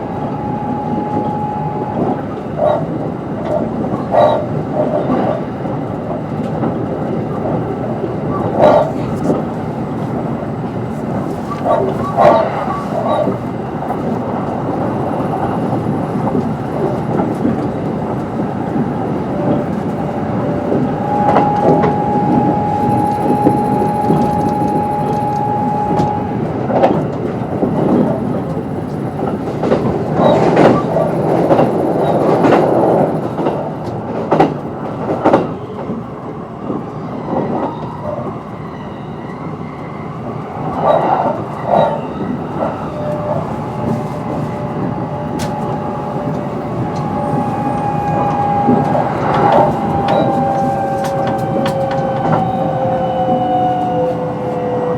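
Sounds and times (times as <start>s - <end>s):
electric train running: 0.0s - 35.9s, 40.6s - 54.9s
steady high tone: 20.0s - 34.0s.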